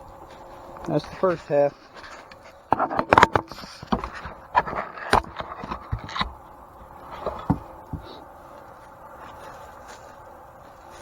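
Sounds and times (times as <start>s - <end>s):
knocks and clatter of tools: 2.1s - 6.4s.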